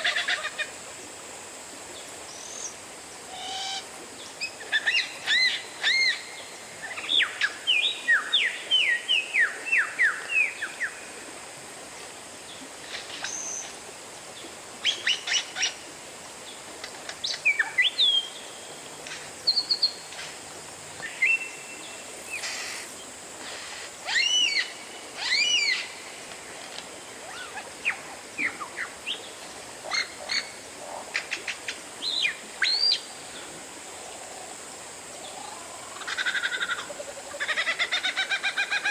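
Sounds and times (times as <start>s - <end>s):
faint hiss: 0.0s - 38.9s
bird singing whistled notes: 24.1s - 25.9s.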